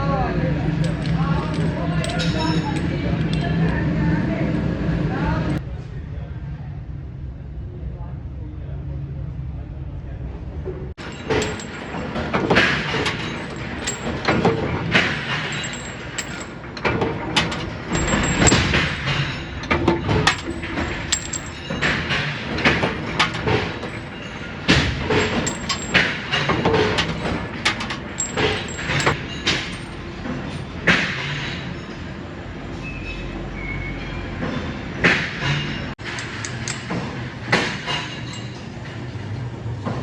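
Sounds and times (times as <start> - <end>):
metal clanks and knocks: 0.8 - 3.8, 11.0 - 31.8, 34.4 - 39.0.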